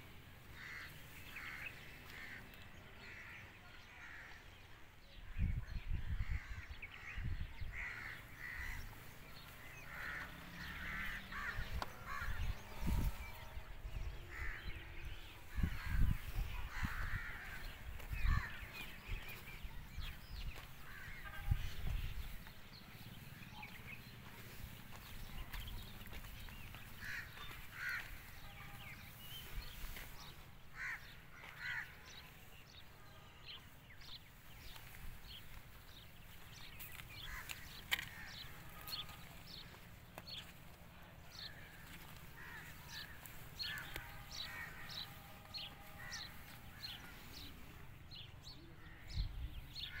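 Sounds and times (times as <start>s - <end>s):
harsh caw-like bird calls: 0.4s - 4.4s, 6.2s - 13.2s, 14.2s - 19.4s, 24.3s - 32.5s, 35.9s - 40.5s, 41.3s - 47.8s.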